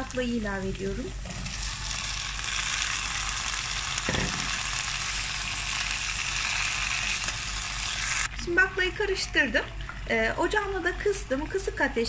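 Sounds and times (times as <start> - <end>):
beans sizzling in oil: 0.0 - 12.0
short knock: 4.1 - 4.5.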